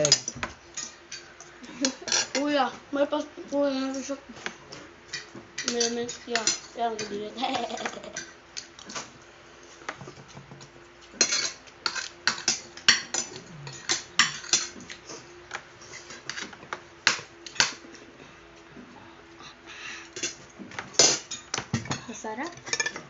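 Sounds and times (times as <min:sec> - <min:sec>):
cutlery clinking against plates: 0:00.0 - 0:02.4, 0:04.7 - 0:07.2, 0:11.0 - 0:15.0, 0:15.9 - 0:17.8, 0:20.1 - 0:23.0.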